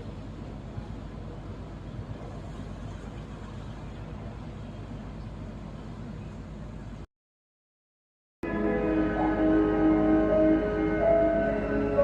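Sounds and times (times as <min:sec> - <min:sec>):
ship engine droning: 0:08.4 - 0:12.0.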